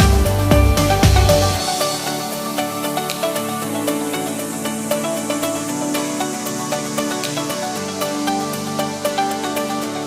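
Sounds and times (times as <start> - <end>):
electronic music with beat: 0.0 - 10.0.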